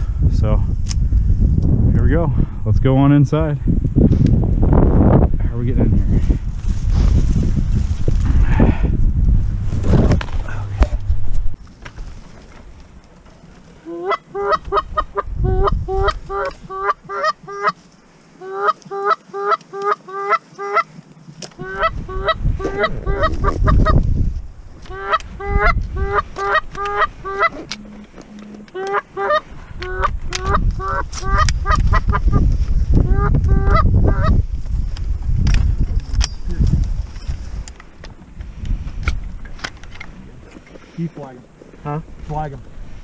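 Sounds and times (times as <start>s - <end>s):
low rumble: 3.8s - 12.9s
goose honking: 21.6s - 23.7s, 24.9s - 31.8s.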